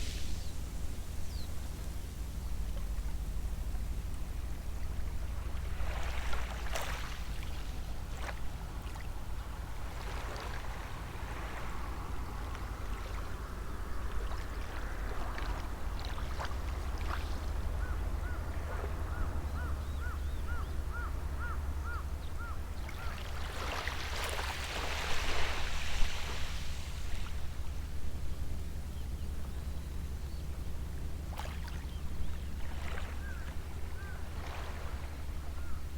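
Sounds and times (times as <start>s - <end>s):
steady low rumble: 0.0s - 35.9s
small waves washing ashore: 4.3s - 28.2s, 31.2s - 35.9s.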